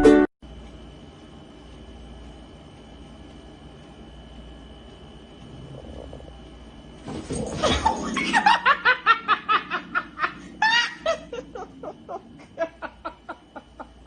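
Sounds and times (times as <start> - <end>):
person laughing hard: 7.6 - 14.0.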